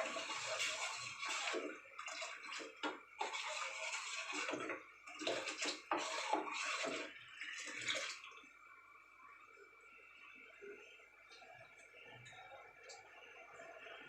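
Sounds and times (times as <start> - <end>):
spoon stirring porridge in pot: 0.0 - 7.1.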